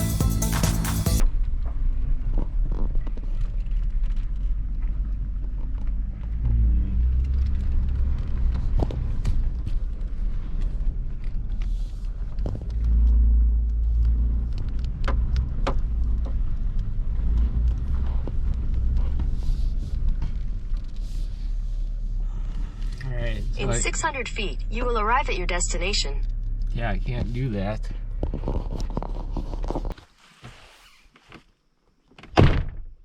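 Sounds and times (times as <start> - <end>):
truck engine and road rumble: 0.0 - 31.0.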